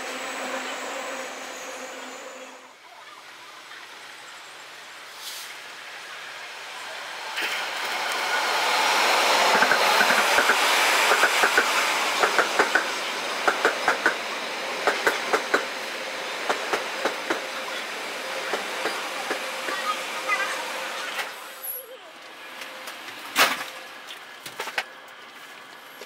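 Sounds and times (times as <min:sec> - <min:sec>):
train rolling rumble: 0:03.7 - 0:26.0
wheels clacking over rail joints: 0:09.4 - 0:17.8.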